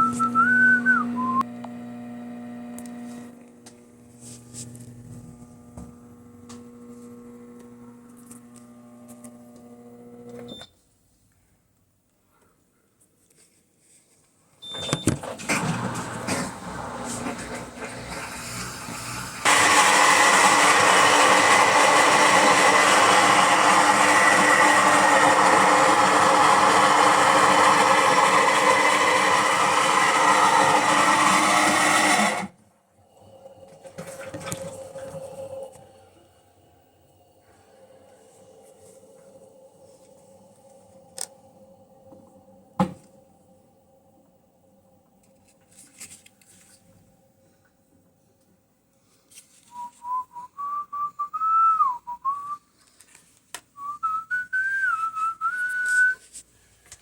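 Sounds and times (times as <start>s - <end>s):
washing machine spinning: 14.6s - 32.5s.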